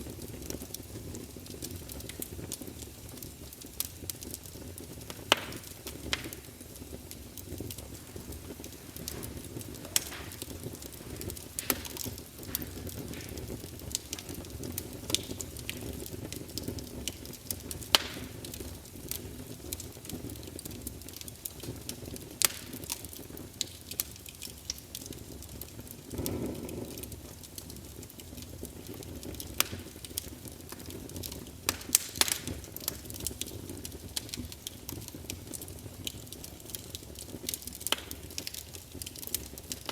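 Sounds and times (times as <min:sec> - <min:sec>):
low rumble of flames: 0:00.0 - 0:39.9
wood crackling and popping: 0:00.0 - 0:39.9.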